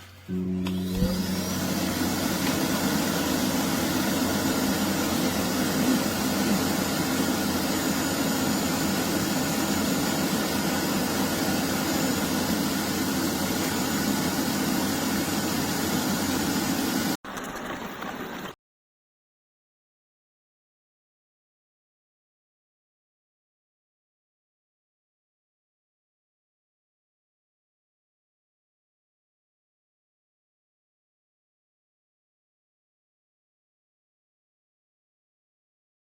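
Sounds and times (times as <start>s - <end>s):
suction motor running: 0.0s - 17.2s.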